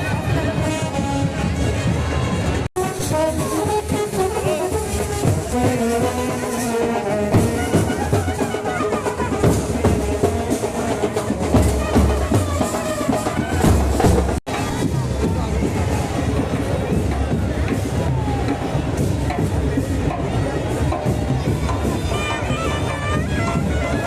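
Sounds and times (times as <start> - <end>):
brass band playing: 0.0 - 14.4, 21.8 - 24.0
drums beating: 0.0 - 24.0.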